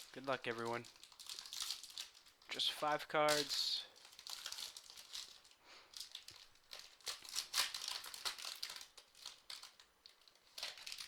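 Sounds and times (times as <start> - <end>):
wrapper crinkling as torn open: 0.0 - 2.7, 3.3 - 11.0.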